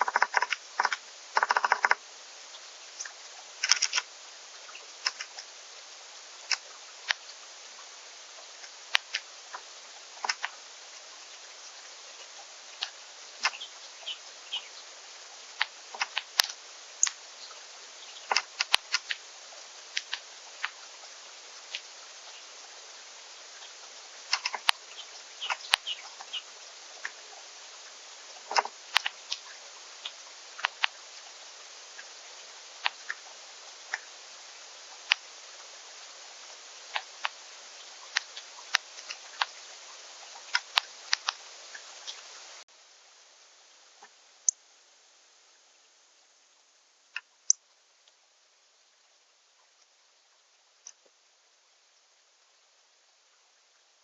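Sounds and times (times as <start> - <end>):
birds pecking seeds: 0.0 - 42.6
steady hiss: 0.0 - 54.0.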